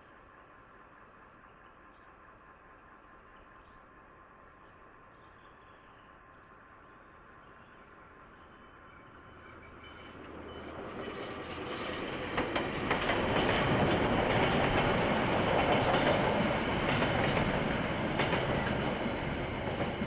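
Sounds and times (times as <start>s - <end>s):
train rumbling past: 0.0s - 20.0s
wheels clacking over rail joints: 9.6s - 20.0s.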